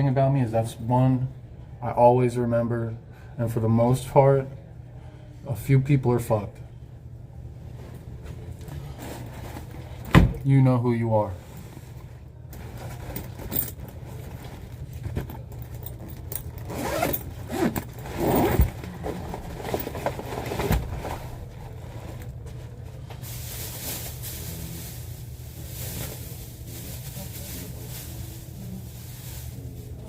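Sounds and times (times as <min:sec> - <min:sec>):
rustling handling noise: 0:07.6 - 0:10.4, 0:11.2 - 0:30.0.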